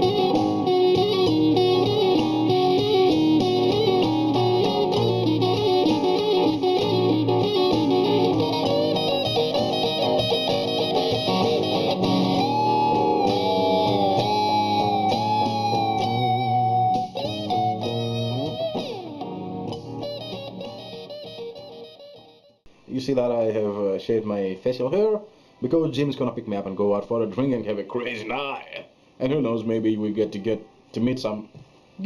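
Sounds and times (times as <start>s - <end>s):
drums: 0.0s - 19.2s
rhythm guitar: 0.0s - 22.2s
electric guitar blues solo: 0.0s - 22.5s.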